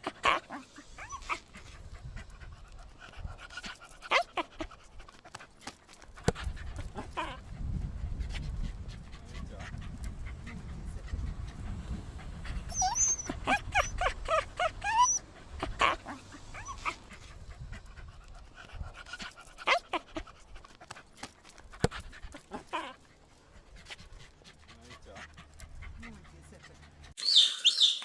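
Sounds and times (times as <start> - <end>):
young animal whining cries: 12.7 - 15.2.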